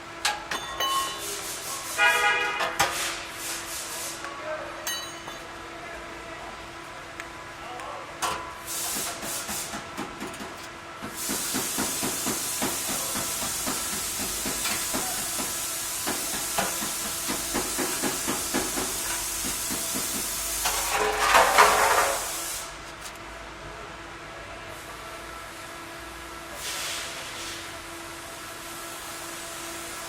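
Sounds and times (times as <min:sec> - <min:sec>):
compressed air hissing: 0:08.6 - 0:10.0, 0:11.0 - 0:20.9, 0:21.6 - 0:23.1.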